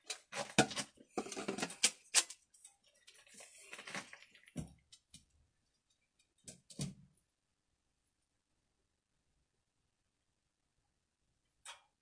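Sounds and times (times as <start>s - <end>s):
plastic pipe fittings clicking and scraping: 0.0s - 7.0s.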